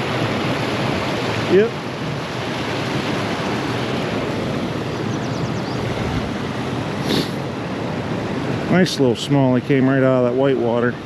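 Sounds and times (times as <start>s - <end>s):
white water rushing: 0.0s - 11.0s.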